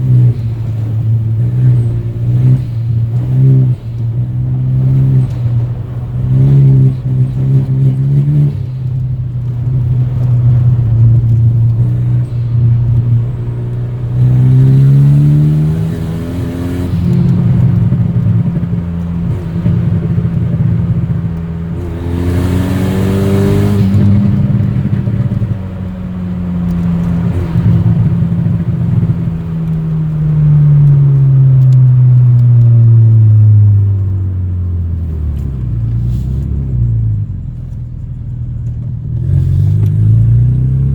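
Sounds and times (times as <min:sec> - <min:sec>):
loud turbocharged car engine revving: 0:09.6 - 0:31.0.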